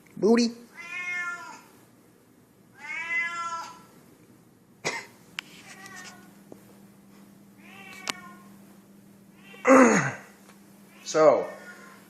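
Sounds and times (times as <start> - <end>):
cat meowing: 0.7 - 1.7, 2.7 - 3.9, 5.6 - 6.3, 7.6 - 8.5, 9.4 - 9.7.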